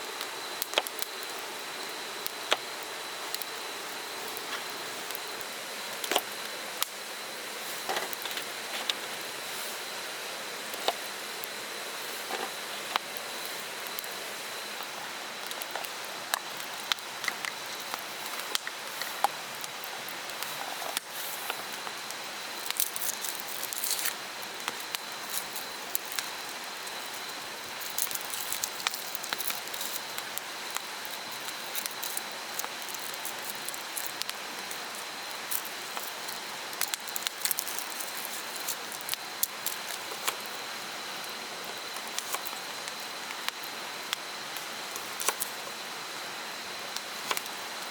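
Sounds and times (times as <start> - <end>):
sharp crackles and ticks: 0.2 - 7.0, 10.7 - 45.8, 46.8 - 47.9.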